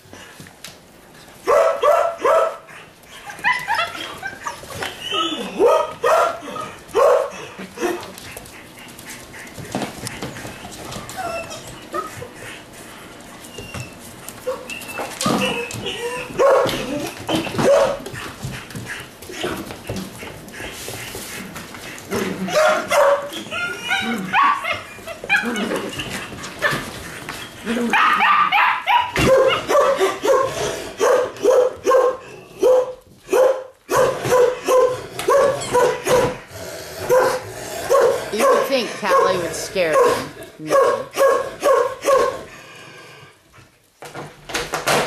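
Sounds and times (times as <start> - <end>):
puppies yipping and barking: 1.5 - 21.3, 21.9 - 36.5.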